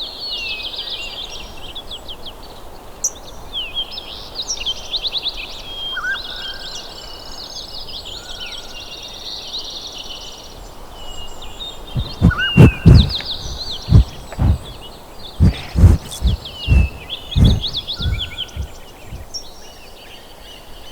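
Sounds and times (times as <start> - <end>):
loud low thuds: 11.9 - 19.2.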